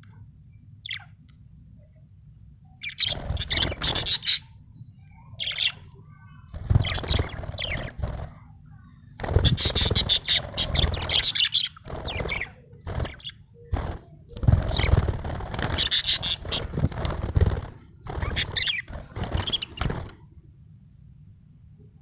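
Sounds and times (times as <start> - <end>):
budgerigar chirping and warbling: 2.8 - 4.6, 5.3 - 5.9, 6.8 - 8.0, 9.4 - 13.4, 15.7 - 16.7, 18.2 - 19.9.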